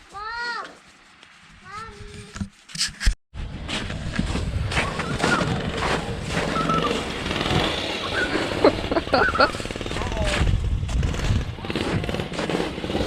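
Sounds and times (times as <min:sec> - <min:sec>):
small vehicle engine running: 0:03.6 - 0:13.0.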